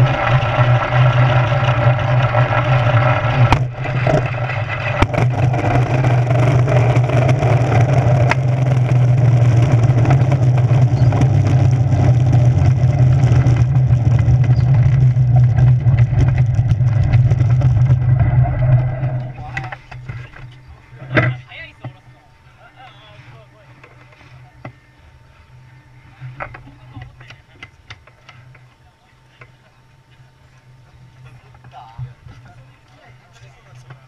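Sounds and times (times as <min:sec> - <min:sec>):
aircraft drone and rush: 0:00.0 - 0:20.5.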